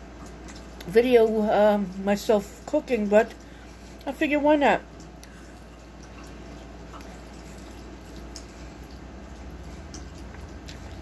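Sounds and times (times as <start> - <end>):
wet mouth clicks of chewing: 5.0 - 11.0.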